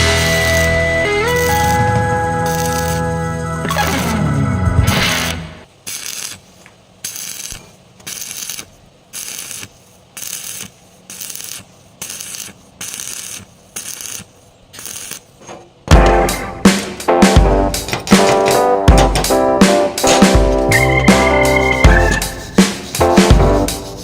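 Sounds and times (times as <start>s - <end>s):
loud background music: 0.0s - 5.6s, 15.9s - 24.0s
hand tool scraping metal: 21.6s - 23.1s.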